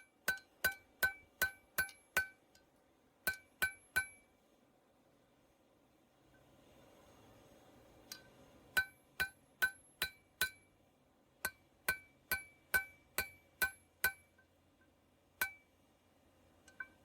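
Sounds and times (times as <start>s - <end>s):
hammer striking metal: 0.0s - 2.6s, 3.2s - 4.3s, 8.1s - 10.7s, 11.4s - 14.5s, 15.4s - 15.7s.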